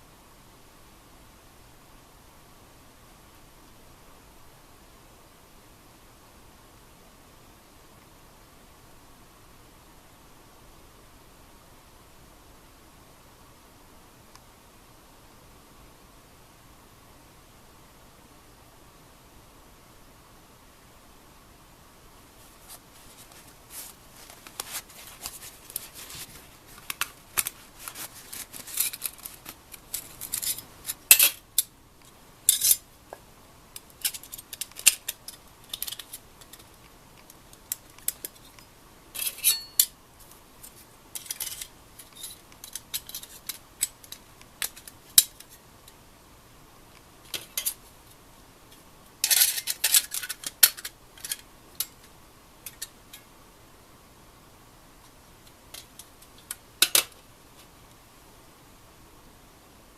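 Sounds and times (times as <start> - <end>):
rustling: 22.4 - 31.2
metal items clinking and scraping: 23.1 - 31.4, 39.2 - 39.9.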